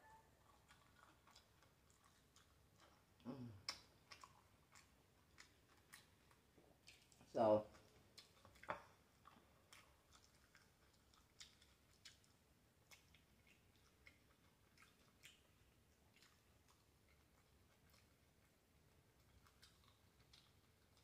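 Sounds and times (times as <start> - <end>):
faint chewing of fried food: 0.0 - 21.0
soft mouth clicks and crackles: 0.5 - 21.0.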